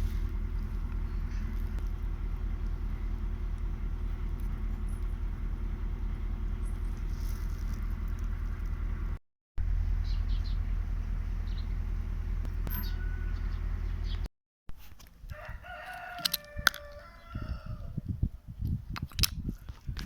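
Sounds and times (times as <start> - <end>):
low rumble: 0.0 - 14.3
rooster crowing: 12.7 - 13.6, 15.3 - 18.0.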